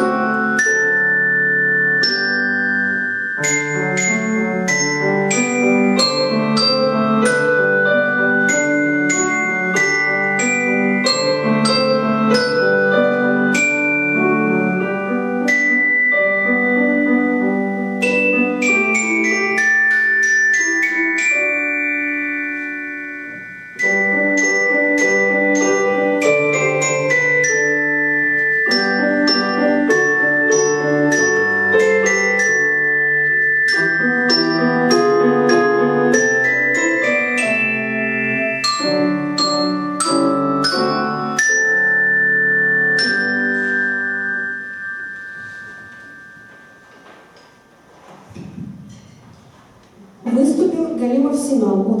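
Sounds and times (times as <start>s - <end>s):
held lower chords: 0.0s - 47.9s
mallet percussion melody: 0.0s - 48.0s.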